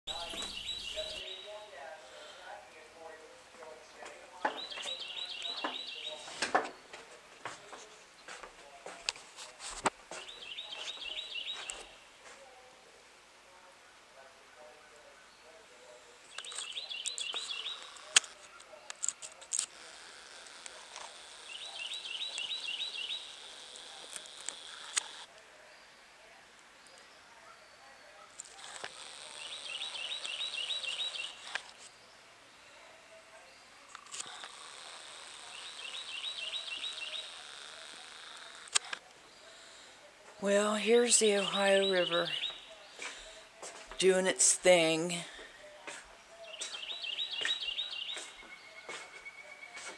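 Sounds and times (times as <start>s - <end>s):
bird chirping: 0.1s - 7.0s, 10.1s - 12.1s, 15.0s - 26.1s, 26.8s - 49.9s
songbird singing: 0.1s - 9.2s, 9.8s - 13.0s, 14.6s - 49.9s
outdoor hiss: 0.1s - 18.8s, 19.6s - 27.2s, 28.6s - 49.1s
sharp clicks: 23.3s - 25.3s, 36.8s - 39.2s.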